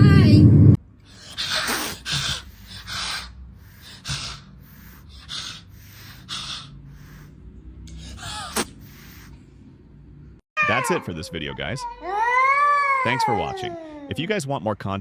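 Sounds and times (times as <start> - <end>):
breathy snuffling breaths: 1.0 - 9.5.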